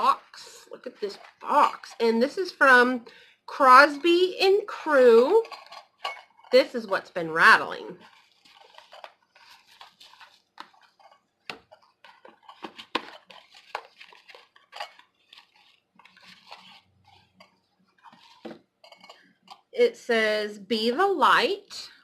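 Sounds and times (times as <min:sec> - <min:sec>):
item rattling in box: 0:08.0 - 0:17.2
packaging rustling and crinkling: 0:08.0 - 0:19.6.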